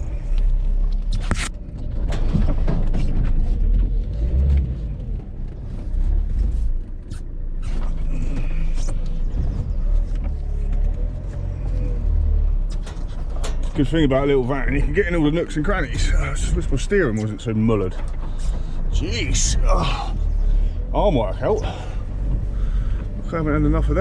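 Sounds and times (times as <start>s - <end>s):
van engine and road rumble: 0.0s - 24.0s
knocks and rattles: 1.2s - 4.7s.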